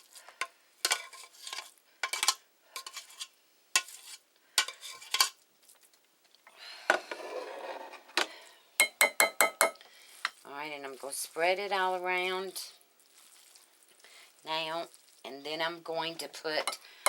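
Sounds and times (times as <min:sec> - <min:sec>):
spoon scraping a pot: 0:00.0 - 0:05.4, 0:07.0 - 0:10.4.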